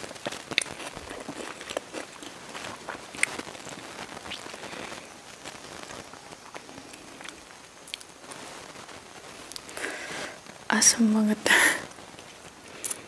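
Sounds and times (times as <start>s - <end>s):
wet chewing and crunching: 0.0s - 5.1s, 6.0s - 8.1s.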